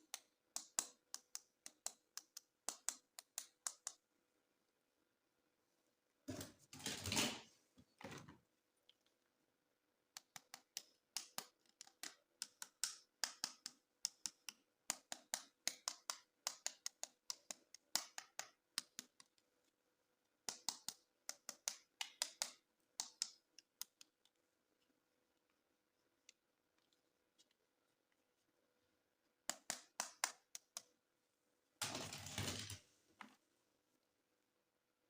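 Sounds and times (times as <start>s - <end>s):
plastic toys clicking and tapping: 10.2s - 19.4s.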